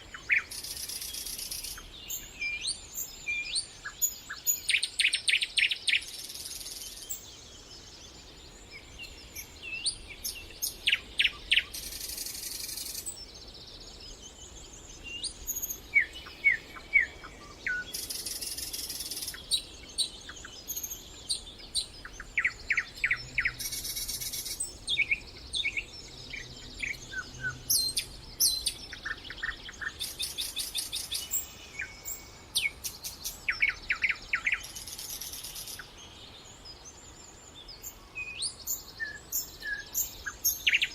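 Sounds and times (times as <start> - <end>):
high thin buzzing bird phrases: 0.0 - 7.3, 8.8 - 13.4, 15.0 - 36.4
songbirds singing: 0.0 - 40.9.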